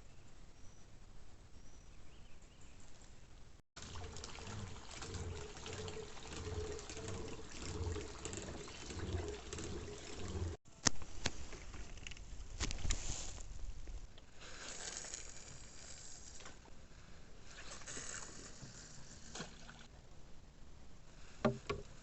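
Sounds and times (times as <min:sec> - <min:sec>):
water trickling and splashing: 0:03.8 - 0:10.6, 0:17.5 - 0:19.9.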